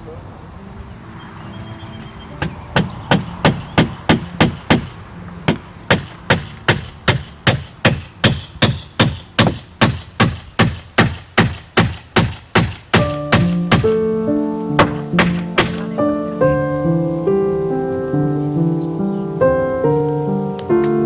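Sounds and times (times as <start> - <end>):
hammer driving nails into wood: 2.4 - 14.0, 14.8 - 15.9.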